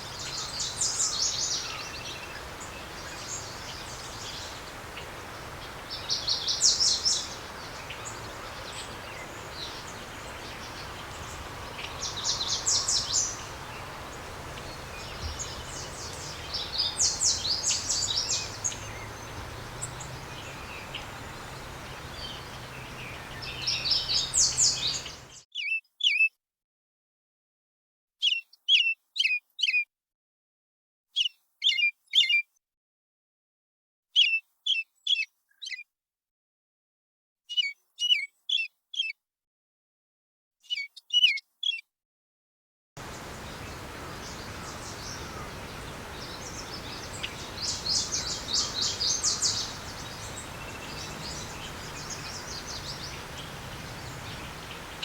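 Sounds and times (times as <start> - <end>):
outdoor background hiss: 0.0 - 25.4, 43.0 - 55.0
songbirds twittering: 0.0 - 25.4, 43.0 - 55.0.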